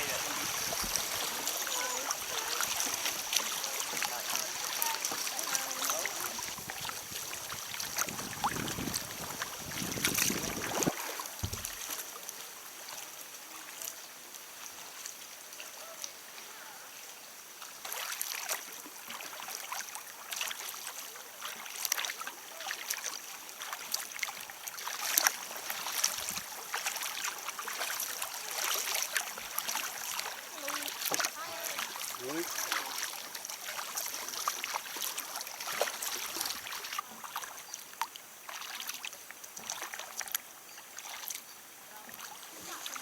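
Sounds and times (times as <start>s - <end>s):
watery hiss: 0.0s - 11.8s
kayak paddle splashes: 0.0s - 43.0s
low wind rumble on microphone: 6.6s - 11.0s.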